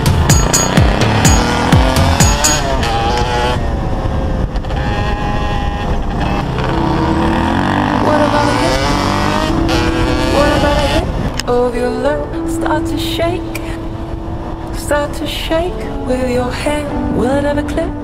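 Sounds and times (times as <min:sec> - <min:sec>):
background music: 0:00.0 - 0:03.5, 0:06.5 - 0:18.0
dirt bike engine revving: 0:00.0 - 0:11.3.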